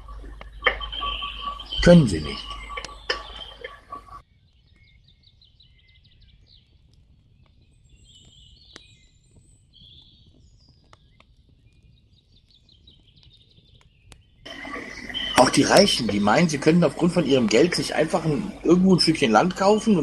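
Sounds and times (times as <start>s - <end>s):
loud hum: 0.0s - 4.1s, 14.5s - 20.0s
birds chirping: 0.0s - 20.0s.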